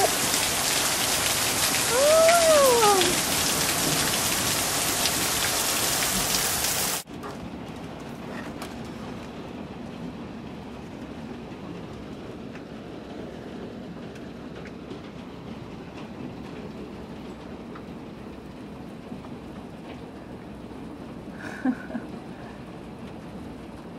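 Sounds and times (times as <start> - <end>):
rainstorm rumble: 0.0 - 23.9.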